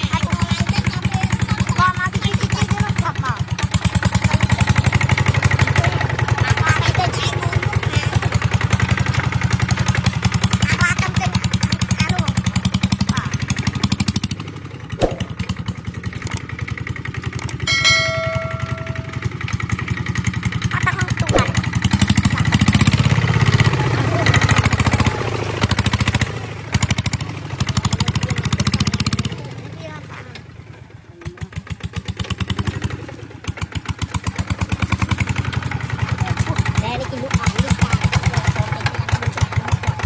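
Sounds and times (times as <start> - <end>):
diesel engine chugging: 0.0 - 40.0
ringing tone: 17.5 - 19.3.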